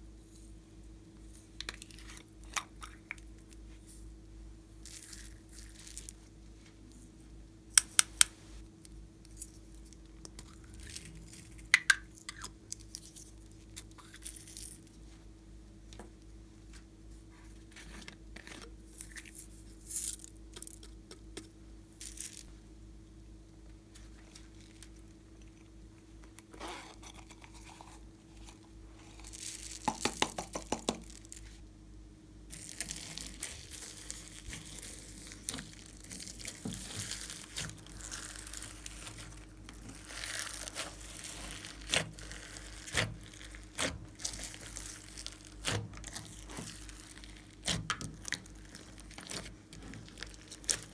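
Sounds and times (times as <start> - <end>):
faint hum: 0.0 - 50.9
hands kneading slime: 32.5 - 50.9.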